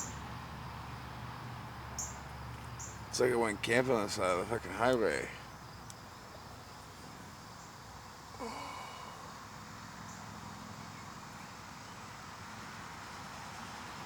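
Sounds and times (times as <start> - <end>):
distant highway traffic hiss: 0.0 - 14.0.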